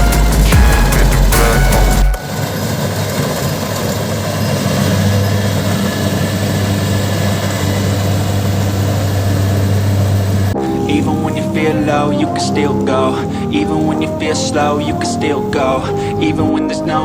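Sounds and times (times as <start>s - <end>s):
harvester engine humming: 0.0s - 12.1s.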